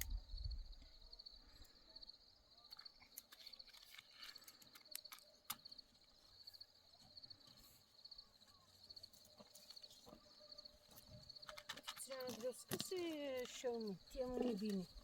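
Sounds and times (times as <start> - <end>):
faint insect trill: 0.0 - 15.0
small clicks and knocks: 2.7 - 5.8, 10.9 - 13.7.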